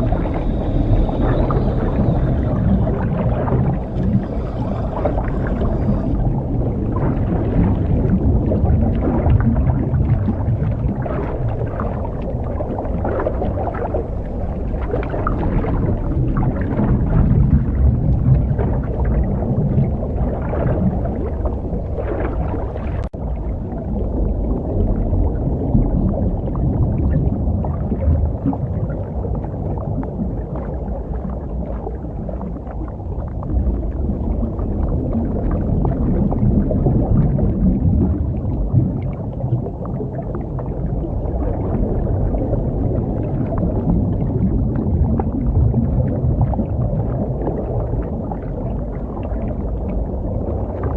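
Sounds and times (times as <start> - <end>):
underwater diver breathing bubbles: 0.0 - 23.1.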